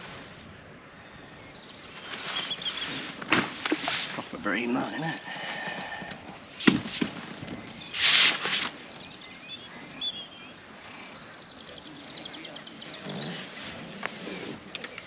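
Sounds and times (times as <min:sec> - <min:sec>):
songbird chirping and trilling: 0:00.0 - 0:15.0
loud rustle: 0:01.8 - 0:04.4, 0:06.0 - 0:08.8.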